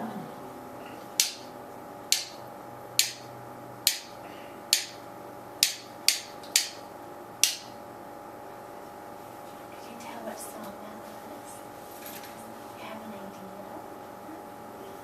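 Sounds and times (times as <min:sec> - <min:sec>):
rhythm sticks tapping: 0:01.2 - 0:05.0, 0:05.6 - 0:07.8.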